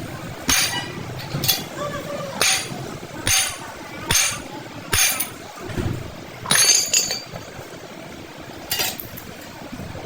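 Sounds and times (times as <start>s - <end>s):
metal clinking on metal: 2.4s - 5.4s, 6.5s - 7.3s.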